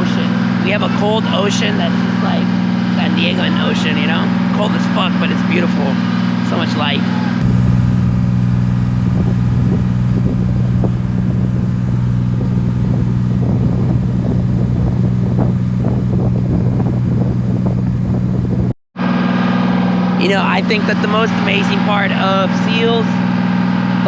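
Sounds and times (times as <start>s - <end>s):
boat engine humming: 7.4s - 18.8s.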